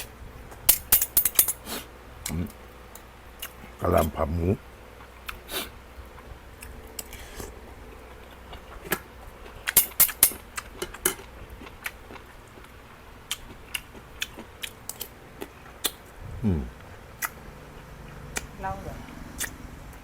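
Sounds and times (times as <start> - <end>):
person chewing crunchy food: 3.4 - 4.2, 5.0 - 18.6, 19.3 - 20.0.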